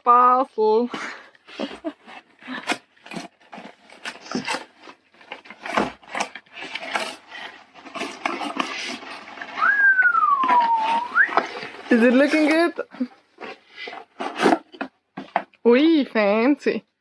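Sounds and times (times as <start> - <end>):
packaging rustling and tearing: 1.5 - 14.9.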